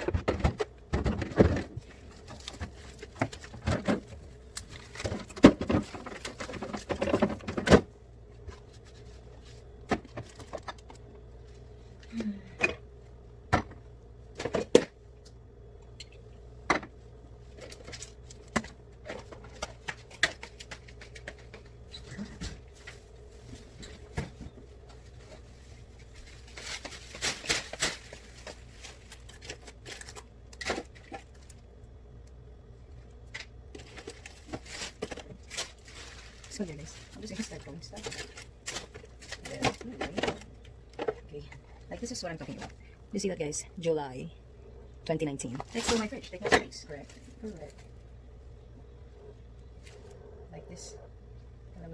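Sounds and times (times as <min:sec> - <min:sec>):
faint hum: 0:00.0 - 0:51.9.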